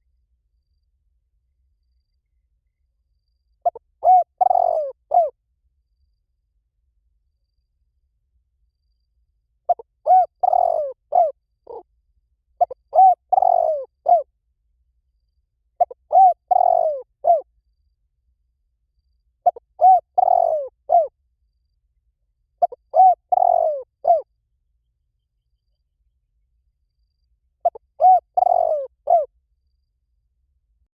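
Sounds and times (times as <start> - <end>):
dove cooing: 3.6 - 5.3, 9.7 - 11.8, 12.6 - 14.3, 15.8 - 17.5, 19.4 - 21.1, 22.6 - 24.2, 27.6 - 29.3.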